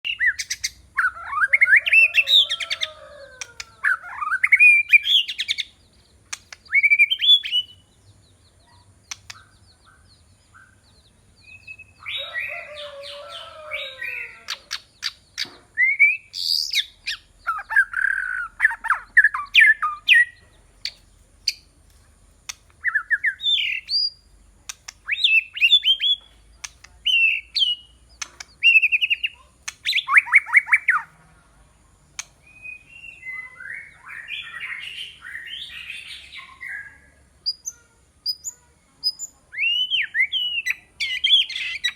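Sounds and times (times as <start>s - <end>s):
songbird whistled phrases: 3.6s - 5.8s, 6.5s - 7.8s, 9.1s - 21.6s, 24.9s - 26.4s, 27.0s - 27.9s, 28.6s - 31.1s, 32.4s - 41.9s
bird sharp clicks: 6.3s - 7.6s, 9.0s - 9.6s, 20.8s - 23.0s, 24.6s - 26.0s, 26.6s - 27.2s, 28.2s - 30.8s, 32.1s - 32.4s.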